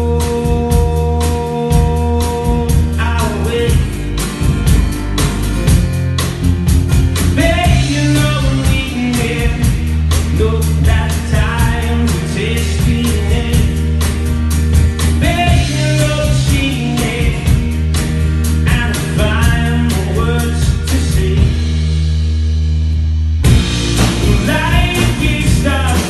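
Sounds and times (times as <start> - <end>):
person singing: 0.0 - 4.0, 7.4 - 14.0, 15.2 - 18.0, 24.0 - 26.0
bass and guitar: 0.0 - 26.0
drum beat: 0.2 - 21.9, 23.4 - 26.0.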